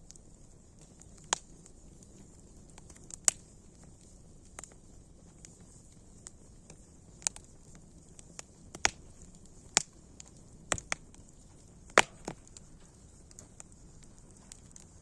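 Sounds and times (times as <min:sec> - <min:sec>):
faint steady hiss: 0:00.0 - 0:15.0
wood fire crackling: 0:00.0 - 0:15.0.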